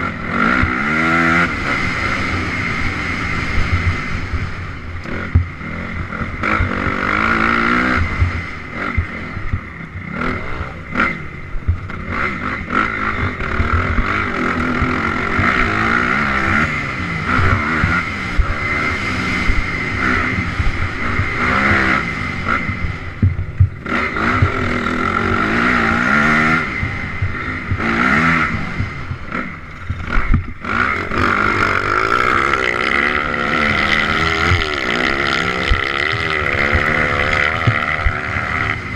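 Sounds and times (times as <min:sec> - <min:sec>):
dirt bike engine revving: 0:00.0 - 0:38.9
wind noise: 0:00.0 - 0:38.9.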